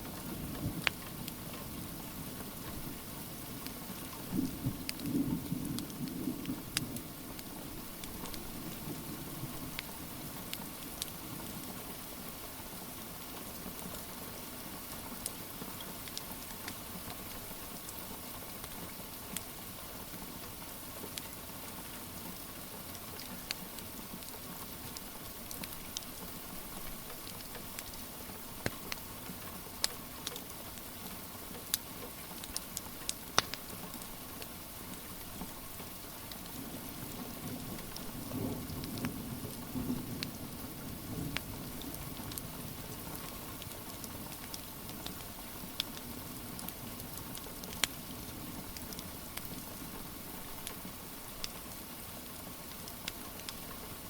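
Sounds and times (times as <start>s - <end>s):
steady rain: 0.0s - 54.0s
wood fire crackling and popping: 4.8s - 5.2s, 6.8s - 8.8s, 10.5s - 11.2s, 23.4s - 30.9s, 31.6s - 51.6s, 52.6s - 53.9s.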